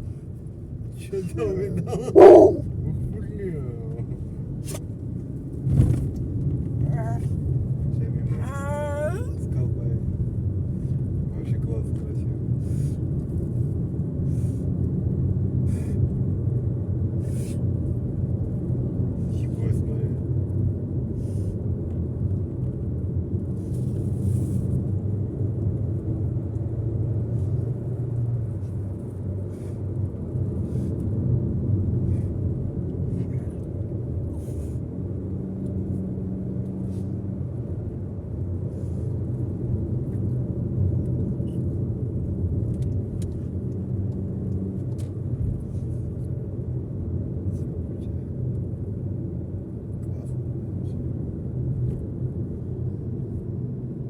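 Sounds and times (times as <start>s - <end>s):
car road rumble from inside: 0.0s - 54.0s.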